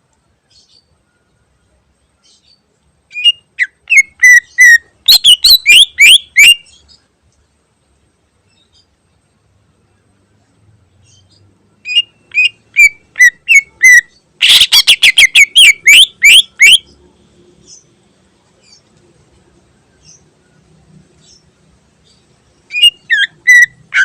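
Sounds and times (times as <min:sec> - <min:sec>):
bird singing whistles: 0:03.1 - 0:06.7, 0:11.8 - 0:16.9, 0:22.7 - 0:23.8.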